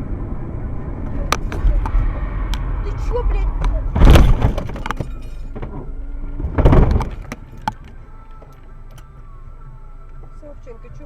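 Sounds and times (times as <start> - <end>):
vehicle crash: 0.7 - 9.1
debris breaking and clinking: 4.0 - 5.5, 6.6 - 9.0.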